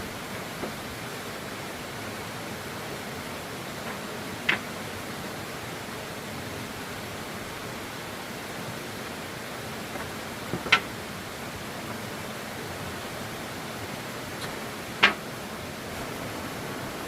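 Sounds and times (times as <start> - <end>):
steady rushing hiss: 0.0 - 17.0
sharp knocks: 9.9 - 10.9, 14.4 - 15.3.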